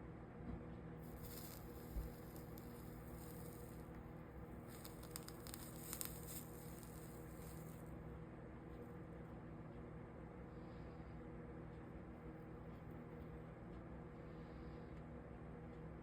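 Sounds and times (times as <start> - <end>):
low steady hum: 0.0 - 16.0
soldering flux crackling sizzle: 1.0 - 8.0.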